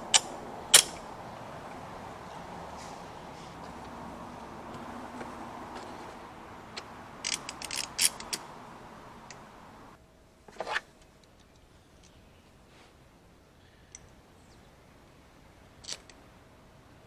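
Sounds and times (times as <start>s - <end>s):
steady hum: 0.0s - 10.0s
sharp mechanical clicks and knocks: 6.8s - 8.4s.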